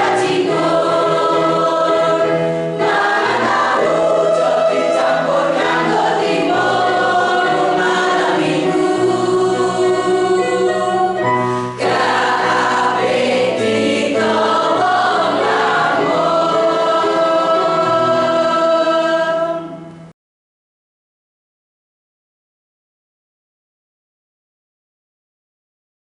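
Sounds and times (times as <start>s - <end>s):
choir singing sustained chords: 0.0s - 19.9s.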